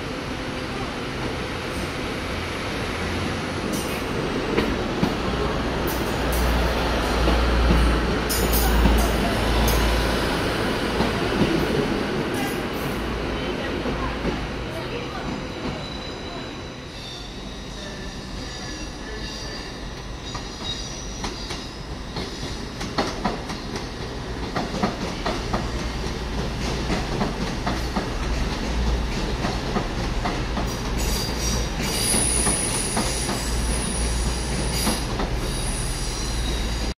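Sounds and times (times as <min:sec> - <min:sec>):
high-pitched wheel squeal: 0:31.0 - 0:36.9.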